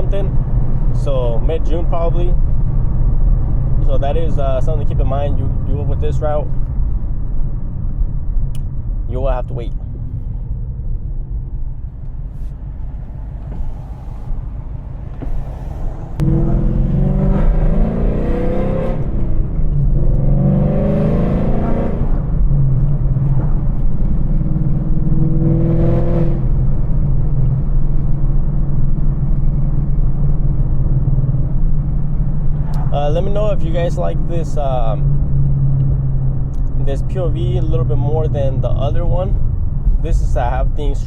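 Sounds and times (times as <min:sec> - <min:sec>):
car engine accelerating: 0:09.7 - 0:41.0.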